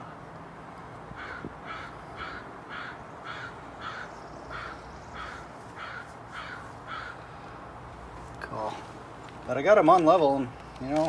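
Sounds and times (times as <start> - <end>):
bird calling: 1.2 - 7.4.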